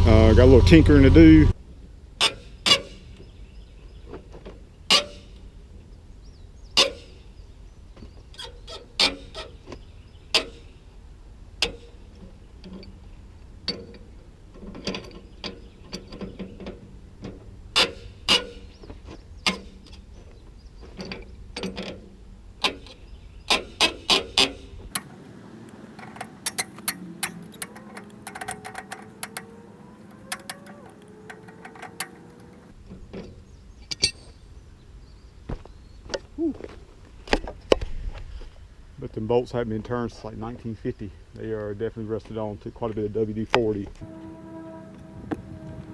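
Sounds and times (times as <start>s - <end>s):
metal clanks of hand tools: 25.0s - 32.7s
ratchet clicks: 25.0s - 32.7s.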